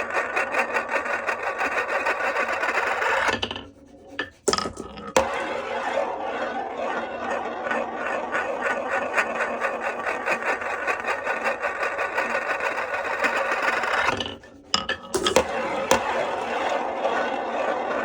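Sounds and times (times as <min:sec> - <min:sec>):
marbles clattering on wood: 0:04.2 - 0:05.5, 0:10.2 - 0:16.8.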